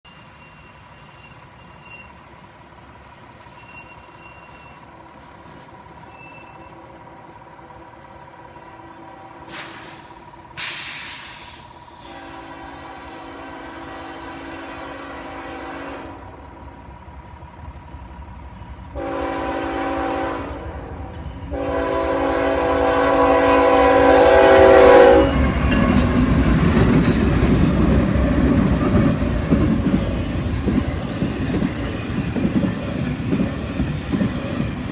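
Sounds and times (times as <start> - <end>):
train passing rumble: 0.1 - 34.9
train air horn blasts: 9.1 - 16.5, 19.0 - 26.0.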